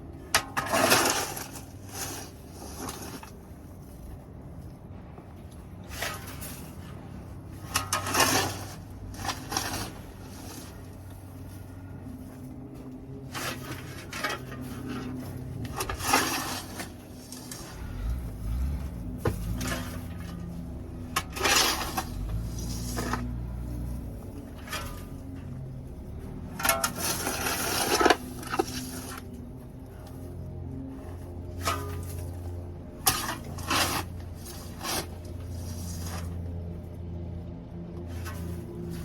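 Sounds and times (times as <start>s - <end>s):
dry bedding being scraped: 7.7s - 12.0s, 31.0s - 36.6s.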